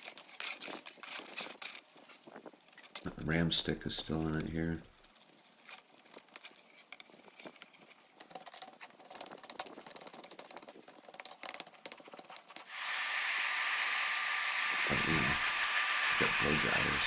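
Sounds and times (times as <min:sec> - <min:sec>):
laptop parts clicking and rattling: 0:05.7 - 0:12.7
blow dryer blowing air: 0:12.7 - 0:17.0.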